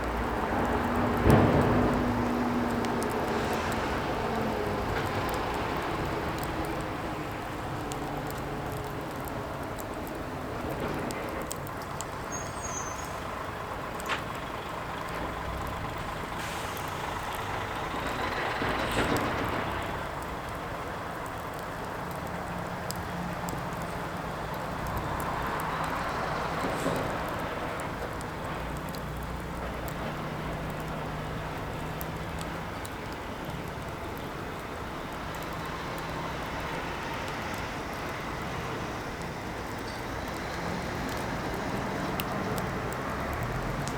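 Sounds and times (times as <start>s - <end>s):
firewood popping and crackling: 0.0s - 43.9s
fire rushing hiss: 0.2s - 8.7s, 16.1s - 20.0s.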